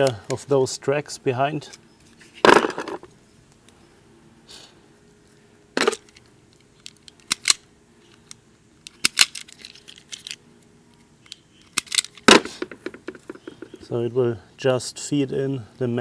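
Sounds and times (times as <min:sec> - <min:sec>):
hand tools clicking and snipping: 0:05.8 - 0:10.4, 0:11.2 - 0:13.7.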